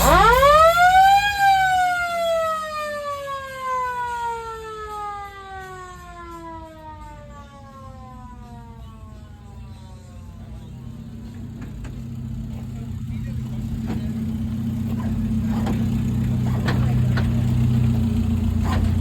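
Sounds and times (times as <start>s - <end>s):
siren winding up and down: 0.0s - 9.6s.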